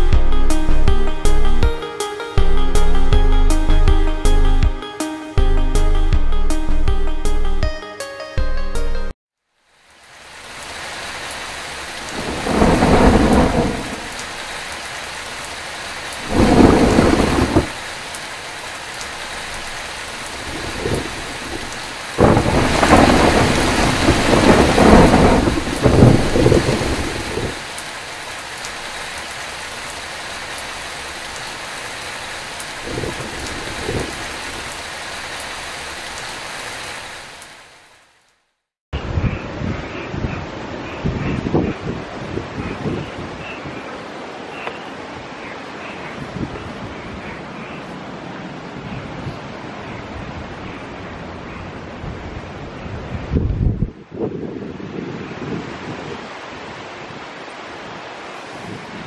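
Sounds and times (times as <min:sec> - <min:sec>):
heavy rain: 0:00.0 - 0:04.8, 0:09.5 - 0:38.6, 0:40.2 - 0:59.0
thunder rumbling: 0:12.0 - 0:14.5, 0:16.2 - 0:17.9, 0:20.2 - 0:27.8, 0:32.7 - 0:34.8.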